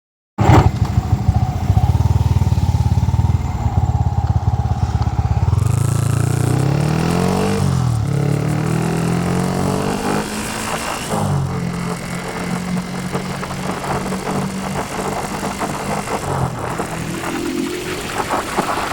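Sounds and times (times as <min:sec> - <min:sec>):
motorcycle engine idling unevenly: 0:00.4 - 0:08.3
motorcycle engine revving: 0:00.4 - 0:18.9.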